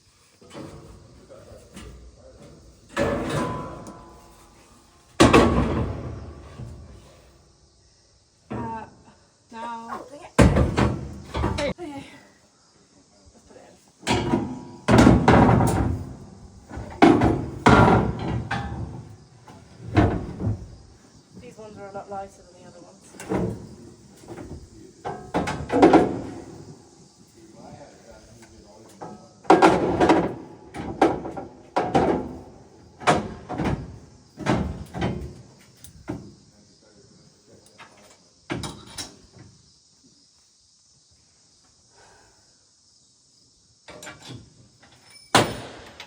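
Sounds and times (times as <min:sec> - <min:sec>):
metal grate clanking and banging: 0:00.4 - 0:07.0, 0:14.0 - 0:20.7, 0:23.2 - 0:26.7, 0:29.0 - 0:36.2, 0:37.9 - 0:39.3, 0:45.0 - 0:46.0.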